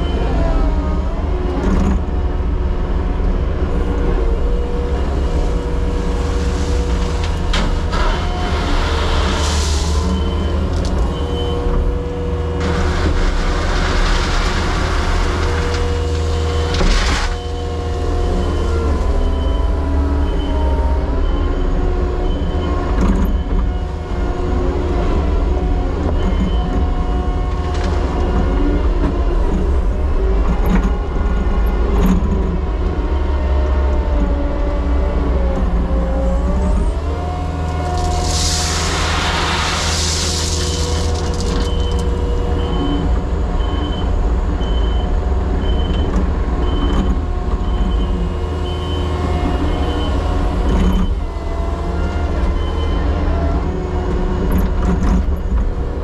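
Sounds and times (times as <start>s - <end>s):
excavator diesel engine: 0.0s - 56.0s
rushing noise: 37.5s - 42.3s.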